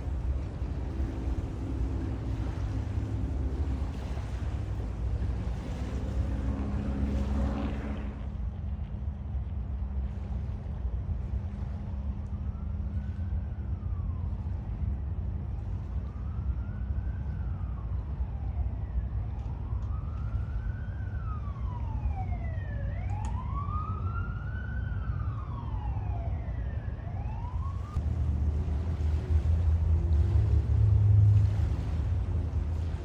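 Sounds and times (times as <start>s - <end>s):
low rumble: 0.0s - 33.0s
emergency siren wailing: 5.2s - 8.2s, 12.3s - 29.4s.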